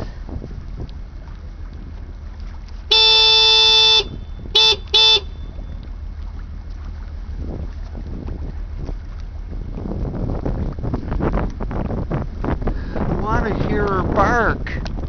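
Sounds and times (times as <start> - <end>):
wind noise on microphone: 0.0 - 15.0
car horn honking: 2.9 - 5.6.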